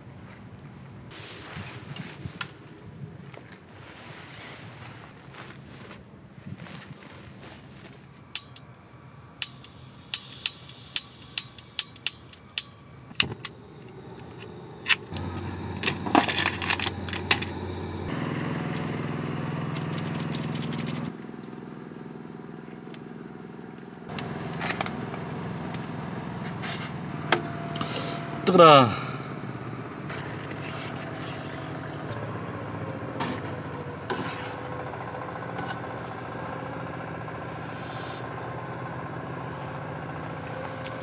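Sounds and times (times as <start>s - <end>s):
vehicle engine running: 6.7s - 41.0s
sharp clicks: 8.4s - 18.1s, 19.7s - 21.1s.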